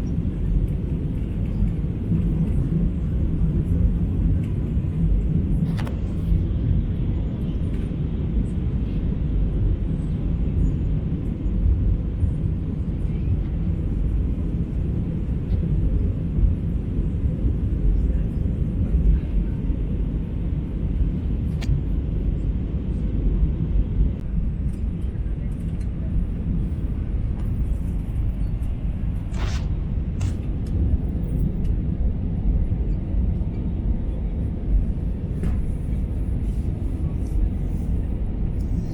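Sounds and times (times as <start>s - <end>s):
jet engine cabin rumble: 0.0s - 38.9s
faint click: 21.5s - 21.8s.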